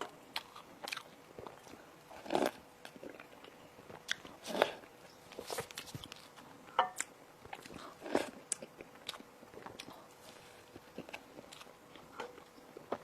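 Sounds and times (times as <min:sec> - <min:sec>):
crunchy bites and chewing: 0:00.3 - 0:06.4.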